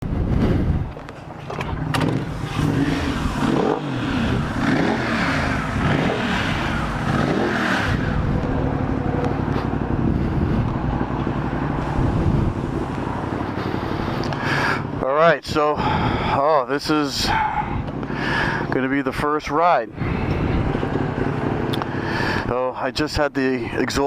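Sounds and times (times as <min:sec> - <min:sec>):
motorcycle engine revving: 0:01.4 - 0:15.0.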